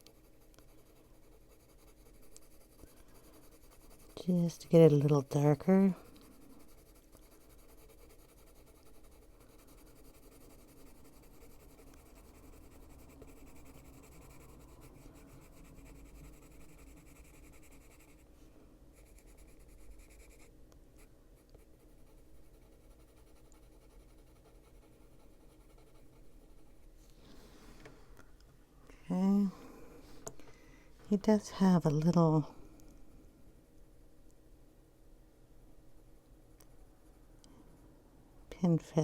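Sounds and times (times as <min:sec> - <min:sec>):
pencil scratching on paper: 0:00.0 - 0:18.2, 0:19.0 - 0:26.7.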